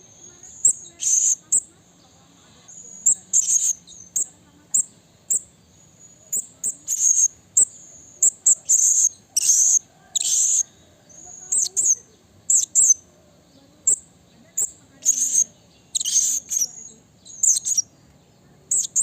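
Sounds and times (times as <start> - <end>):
parrot high-pitched calls: 0.4 - 1.6, 2.7 - 5.4, 6.3 - 13.0, 14.6 - 17.9.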